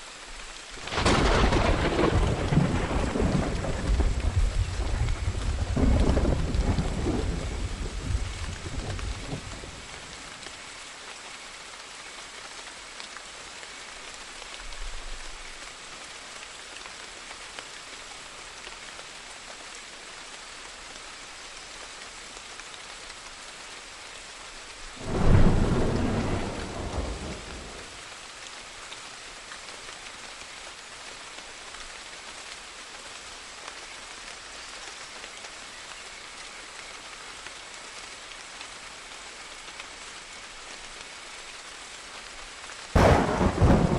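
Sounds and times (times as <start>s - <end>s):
steady rain: 0.0s - 43.9s
thunder rumbling: 0.9s - 10.1s, 25.0s - 28.0s, 43.0s - 43.9s
loud thunder clap: 25.0s - 27.8s, 43.0s - 43.9s.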